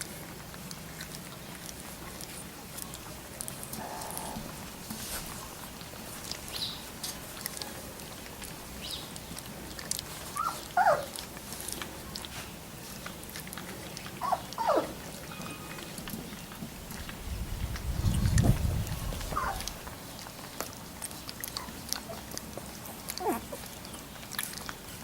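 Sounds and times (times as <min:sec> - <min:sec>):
puppies whining: 0:03.6 - 0:04.6, 0:10.2 - 0:11.3, 0:14.0 - 0:15.9, 0:19.2 - 0:20.4, 0:21.2 - 0:24.7.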